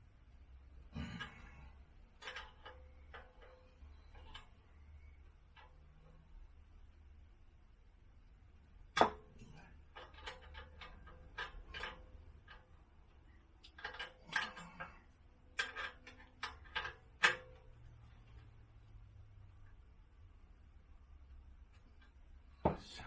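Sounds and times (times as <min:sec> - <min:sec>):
tools and metal parts clicking: 0:01.1 - 0:06.2, 0:09.4 - 0:18.5.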